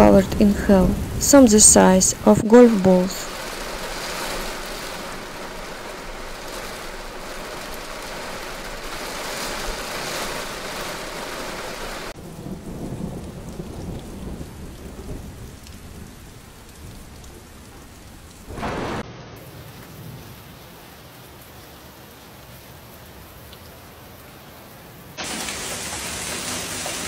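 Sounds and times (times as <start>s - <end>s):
rain hissing: 0.0s - 20.8s, 25.2s - 27.0s
wet traffic on slushy road: 2.6s - 12.2s, 25.2s - 27.0s.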